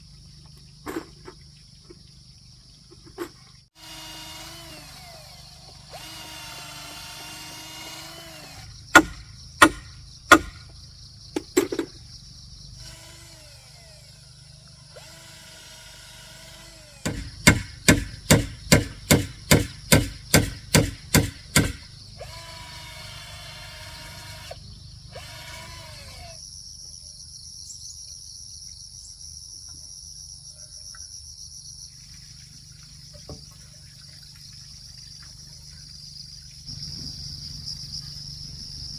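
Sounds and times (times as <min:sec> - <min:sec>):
cicadas droning: 0:00.0 - 0:38.9
power drill running: 0:03.8 - 0:08.8, 0:12.8 - 0:17.3, 0:22.2 - 0:26.4
hammer striking wood: 0:08.9 - 0:10.6, 0:17.0 - 0:21.8.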